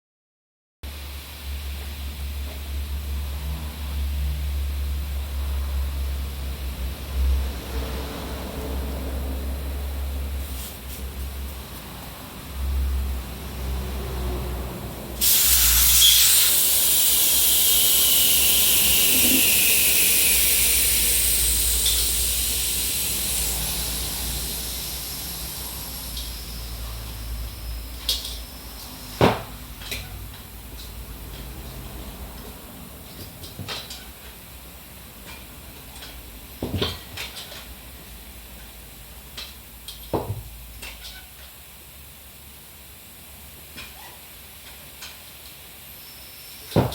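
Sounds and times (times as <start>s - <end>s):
air hissing out of tyre: 15.1s - 29.6s.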